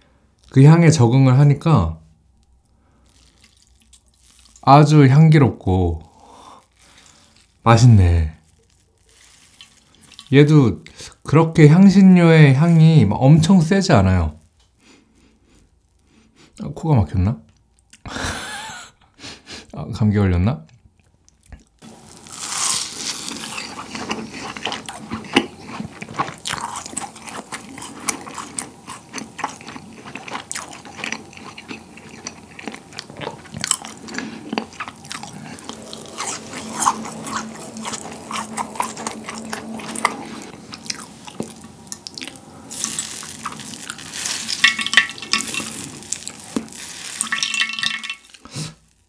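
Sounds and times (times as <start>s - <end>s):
biting and chewing mouth sounds: 20.7s - 48.8s
syrup dripping onto a plate: 44.5s - 48.4s.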